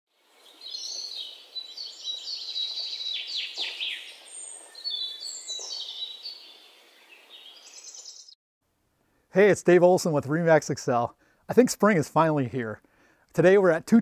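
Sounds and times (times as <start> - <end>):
steady outdoor hiss: 0.1 - 14.0
songbirds chirping and whistling: 0.3 - 8.4.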